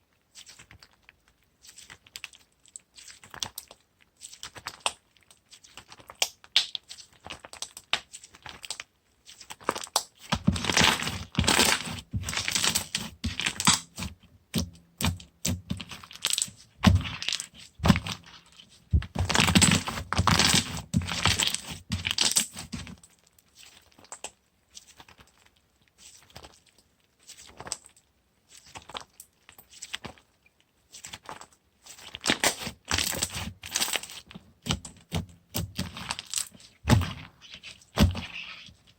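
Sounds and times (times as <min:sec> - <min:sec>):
slime crackling and popping: 0:04.4 - 0:25.4, 0:31.0 - 0:38.7.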